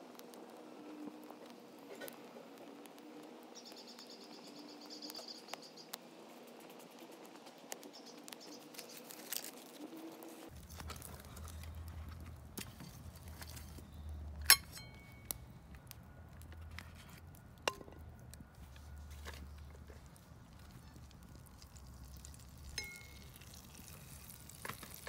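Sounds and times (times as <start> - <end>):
sharp metallic clink: 14.4 - 15.3.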